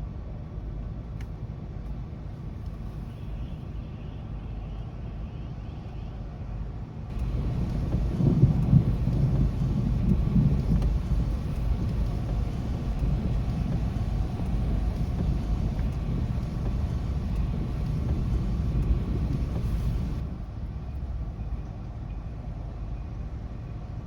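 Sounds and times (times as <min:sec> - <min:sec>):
faint storm hiss: 0:07.1 - 0:20.5
rolling thunder rumble: 0:07.1 - 0:20.5.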